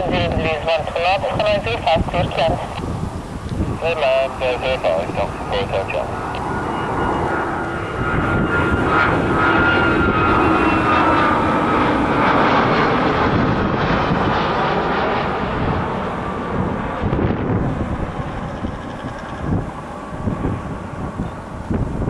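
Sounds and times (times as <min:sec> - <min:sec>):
faint jet engine whine: 0:00.0 - 0:22.0
jet airliner engine roar: 0:00.0 - 0:22.0.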